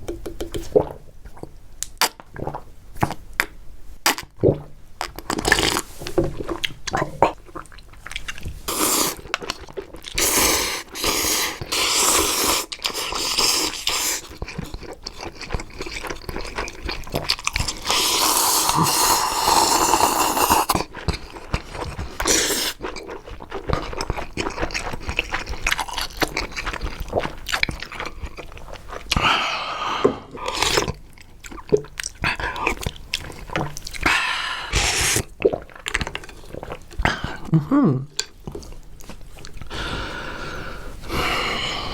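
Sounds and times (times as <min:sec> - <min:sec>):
chewing and biting chewy food: 0:05.0 - 0:29.4, 0:30.3 - 0:37.5.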